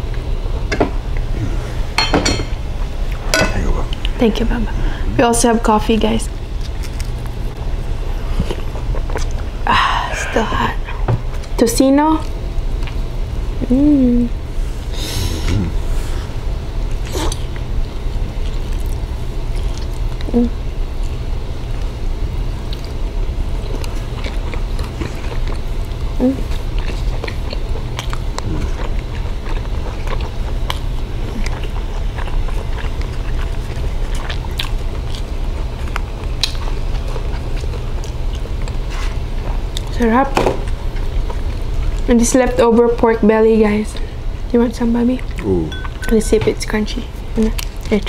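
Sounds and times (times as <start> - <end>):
steady low hum: 0.0 - 48.0
chewing and biting: 6.5 - 9.5, 16.9 - 40.0, 45.2 - 46.2.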